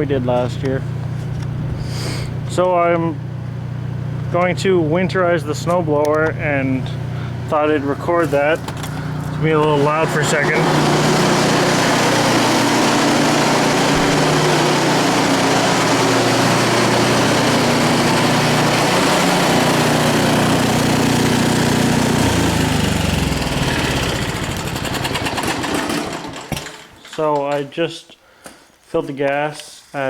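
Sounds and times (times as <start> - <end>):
snowblower engine running: 0.0 - 26.9.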